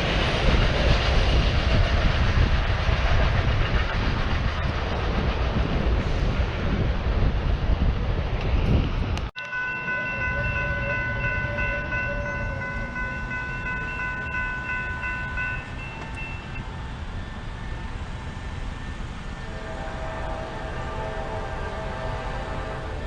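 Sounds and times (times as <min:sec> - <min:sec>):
train rumbling: 0:00.0 - 0:23.0
locomotive air horn chord: 0:09.4 - 0:13.1, 0:19.4 - 0:23.0.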